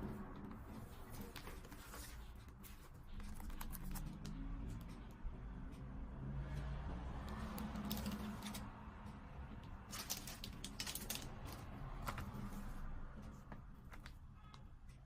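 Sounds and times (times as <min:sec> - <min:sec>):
packaging rustling: 0:09.9 - 0:12.2.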